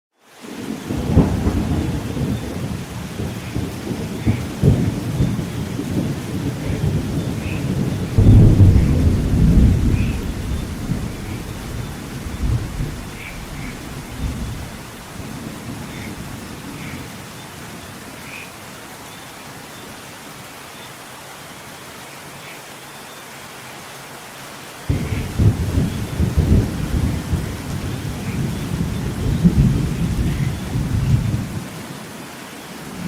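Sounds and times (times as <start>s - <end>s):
steady rain: 0.1s - 33.0s
rolling thunder: 0.8s - 16.9s, 24.9s - 31.6s.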